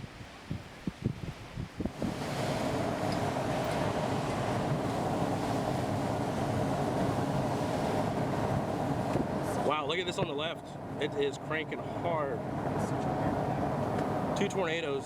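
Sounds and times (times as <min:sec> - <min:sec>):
wind rushing: 0:00.0 - 0:09.7
wind buffeting microphone: 0:00.0 - 0:15.0
vehicle road noise: 0:01.9 - 0:15.0.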